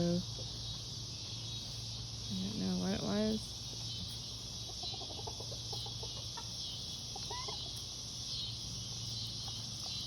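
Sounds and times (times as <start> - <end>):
crickets chirping: 0.0 - 10.0
chickens clucking: 3.7 - 10.0
chicken call: 7.1 - 7.7.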